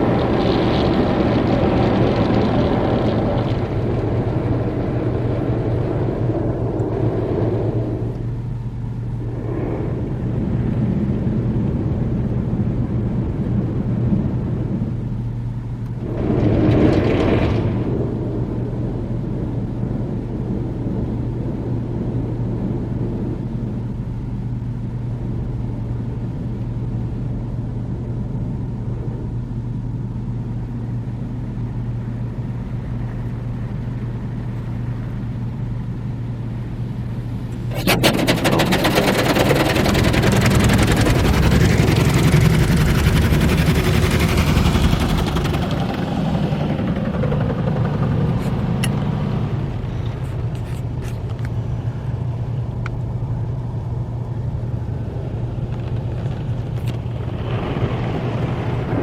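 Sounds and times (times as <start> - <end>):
steady low hum: 0.0 - 59.0
car wash spray and brushes: 36.6 - 59.0.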